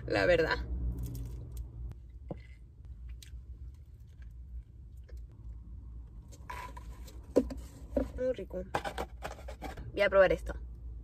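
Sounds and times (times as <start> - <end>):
low steady hum: 0.0 - 11.0
person chewing: 2.4 - 5.3.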